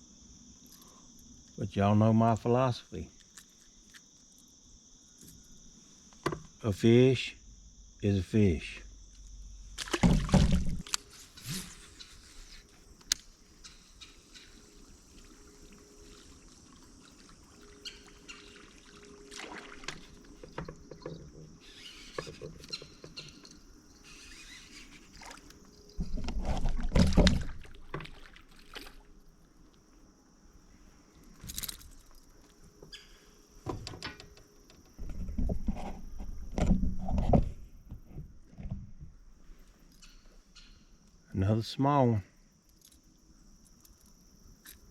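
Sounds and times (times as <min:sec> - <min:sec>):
high-pitched insect drone: 0:00.0 - 0:26.9
knocks and clicks in a boat: 0:09.8 - 0:11.0, 0:19.9 - 0:23.7, 0:25.9 - 0:28.2, 0:33.6 - 0:39.2.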